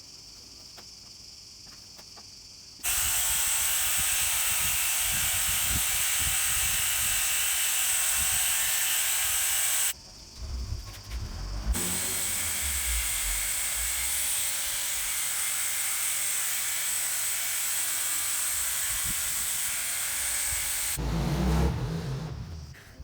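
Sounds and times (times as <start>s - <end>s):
small electric motor whining: 2.8s - 10.0s, 11.4s - 21.1s
rough noise with low rumble: 10.2s - 14.6s.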